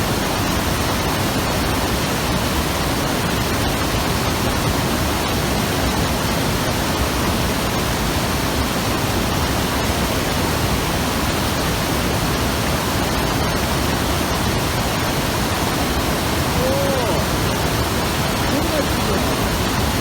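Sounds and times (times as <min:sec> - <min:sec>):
river water rushing: 0:15.1 - 0:20.0.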